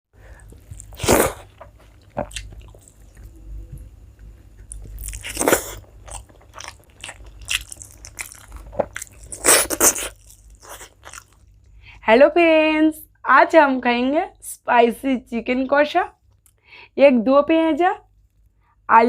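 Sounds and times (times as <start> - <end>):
person chewing crunchy food: 0.3 - 11.8.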